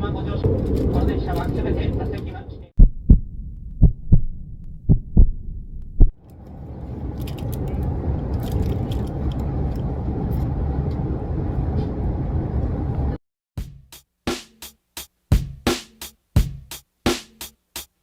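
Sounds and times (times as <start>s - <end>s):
train rumble: 0.0s - 2.7s, 3.8s - 13.2s.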